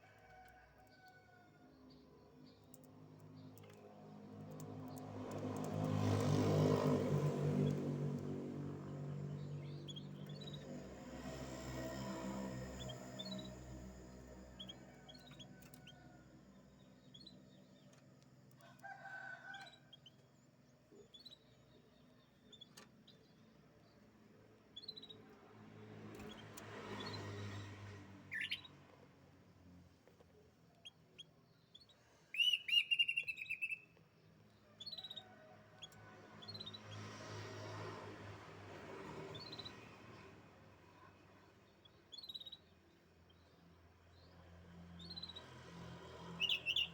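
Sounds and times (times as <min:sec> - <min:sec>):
canary chirping and trilling: 0:46.4 - 0:46.9.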